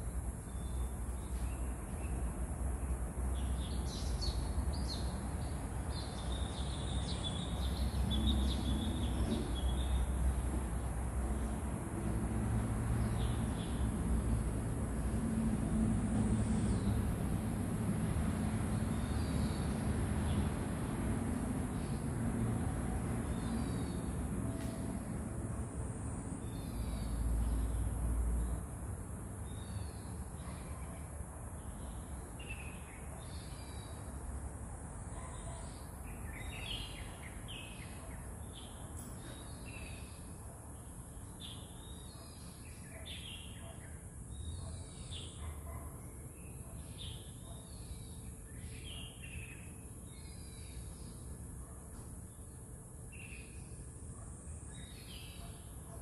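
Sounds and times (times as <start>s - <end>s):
small birds chirping: 0.4s - 10.5s.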